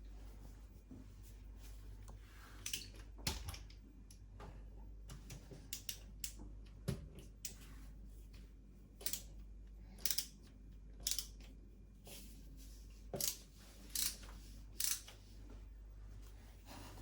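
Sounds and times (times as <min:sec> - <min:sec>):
light clicks of small tools: 0:02.0 - 0:04.2, 0:05.1 - 0:07.7, 0:09.0 - 0:11.6.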